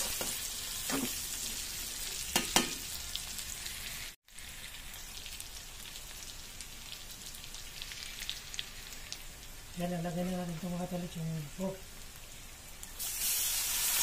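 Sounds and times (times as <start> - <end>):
pork frying in a wok: 0.0 - 14.0
oil popping and crackling: 4.2 - 9.6.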